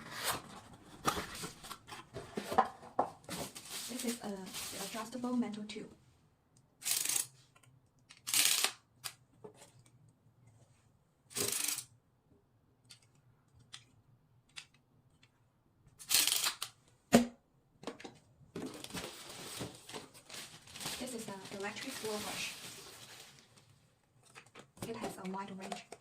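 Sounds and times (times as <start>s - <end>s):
packaging rustling: 3.3s - 5.1s, 18.6s - 24.6s.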